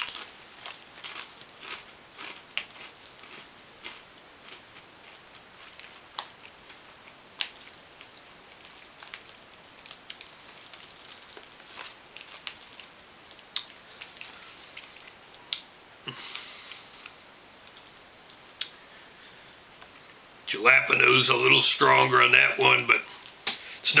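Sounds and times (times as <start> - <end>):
potato chips crunching: 0.0 - 17.9.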